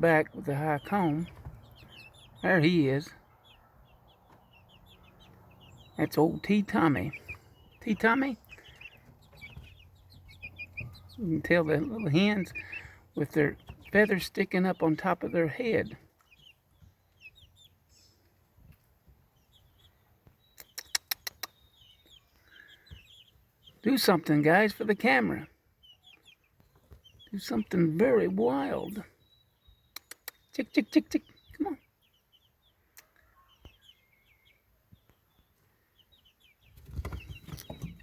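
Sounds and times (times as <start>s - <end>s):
chicks chirping: 0.0s - 38.0s
sharp clicks: 20.6s - 21.6s, 29.9s - 30.5s.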